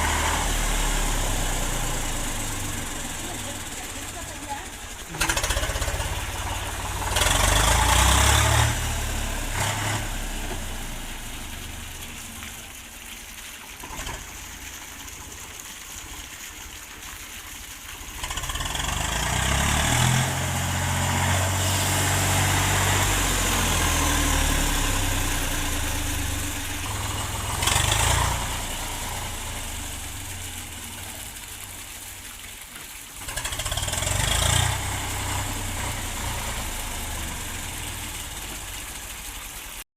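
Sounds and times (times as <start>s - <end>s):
tractor diesel engine running: 0.0s - 12.8s, 17.9s - 32.0s.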